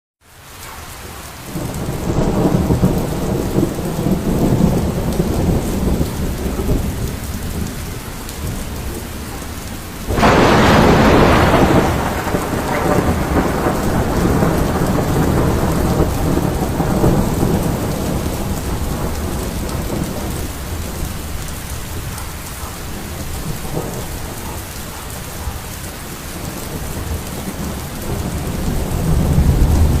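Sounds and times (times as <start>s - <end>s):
heavy rain falling: 0.2s - 30.0s
loud thunderclap: 1.5s - 9.1s, 10.1s - 21.3s, 23.0s - 24.6s, 26.3s - 30.0s
rolling thunder: 1.5s - 30.0s.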